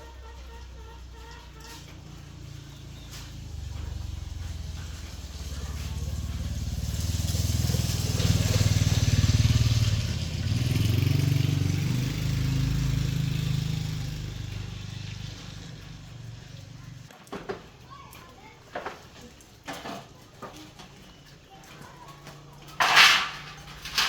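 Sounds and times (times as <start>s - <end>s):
small engine running: 0.0s - 17.1s.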